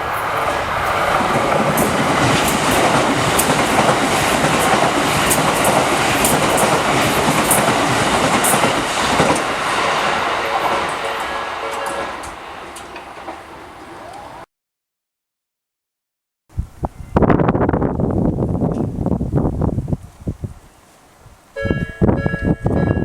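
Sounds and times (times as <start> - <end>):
electric train running: 0.0 - 13.6
wheels clacking over rail joints: 0.0 - 13.6.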